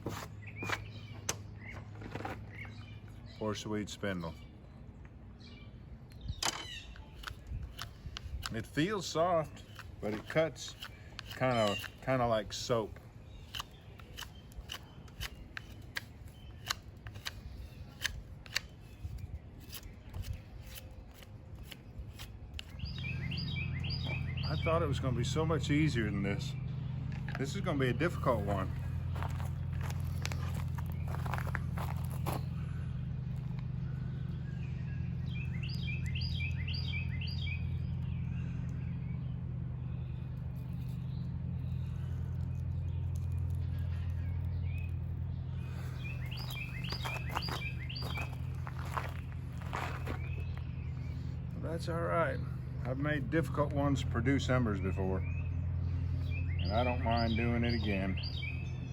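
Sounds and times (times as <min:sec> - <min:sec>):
songbird chirping: 0:00.0 - 0:58.9
steady low hum: 0:00.0 - 0:58.9
knife cutting into wood: 0:09.5 - 0:12.0.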